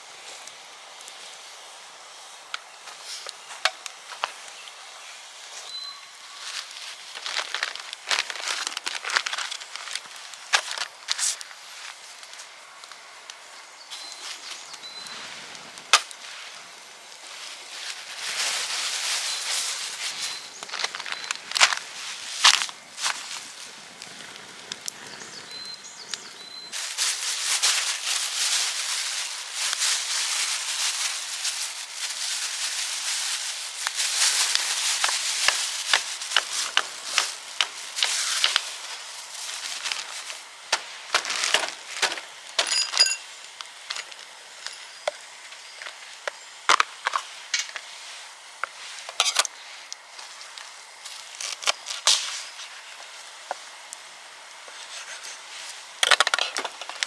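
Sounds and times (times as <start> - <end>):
dry wood crackling: 6.6 - 42.8.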